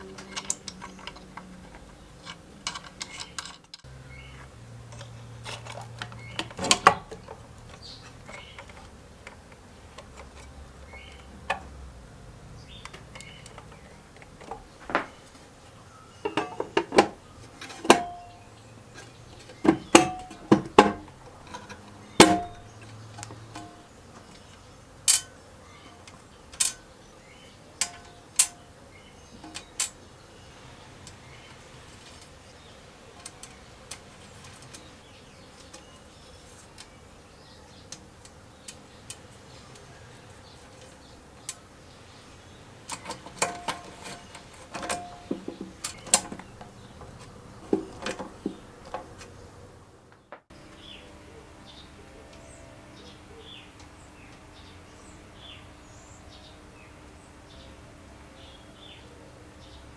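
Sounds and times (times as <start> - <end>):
clicks and knocks of small parts: 0.0 - 3.9, 12.8 - 15.2, 19.0 - 25.4, 26.0 - 26.9, 27.8 - 30.0, 31.0 - 37.0, 42.8 - 49.4.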